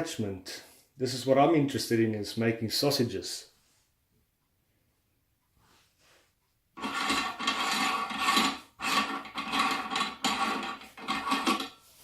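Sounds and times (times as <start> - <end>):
rubbing and scraping of parts: 6.1 - 12.0.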